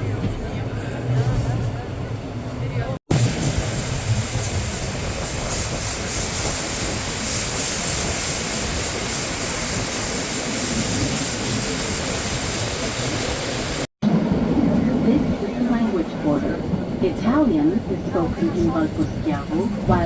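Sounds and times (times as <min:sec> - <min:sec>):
train running along track: 0:00.0 - 0:20.0.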